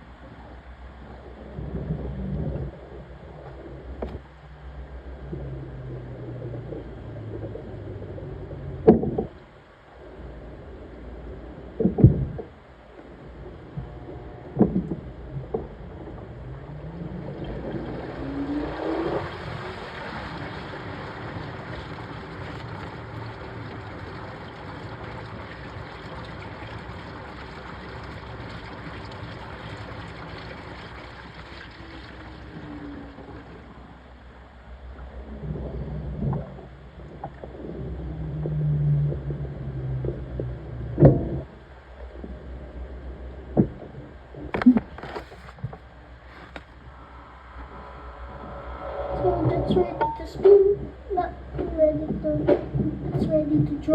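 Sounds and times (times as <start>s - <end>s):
washing machine drum spinning: 16.4s - 33.8s.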